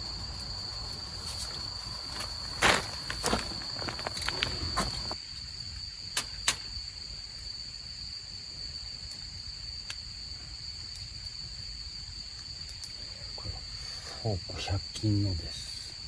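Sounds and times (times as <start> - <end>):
insects trilling: 0.0 - 16.0
knocks and rustles of handling: 1.0 - 5.2.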